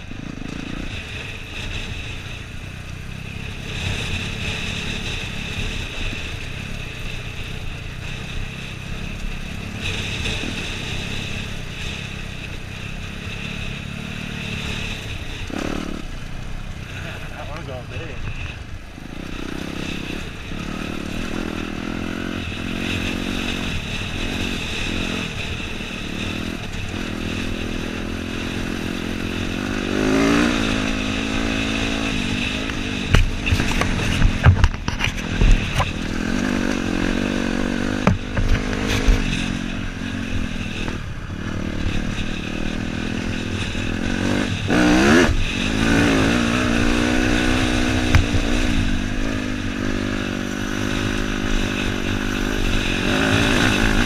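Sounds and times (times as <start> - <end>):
dirt bike engine revving: 0.0 - 54.0
sharp knocks and clatter: 33.0 - 36.0, 37.9 - 39.4.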